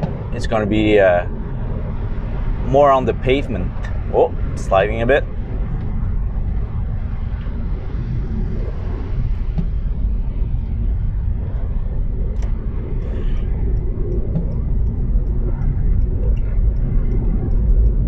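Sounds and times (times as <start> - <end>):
faint ticks: 11.5 - 18.0.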